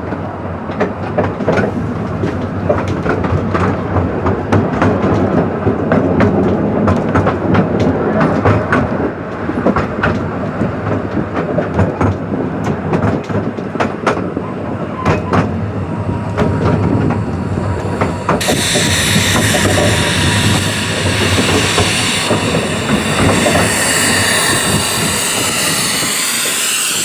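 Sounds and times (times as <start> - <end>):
faint thin squeal: 14.5 - 27.0.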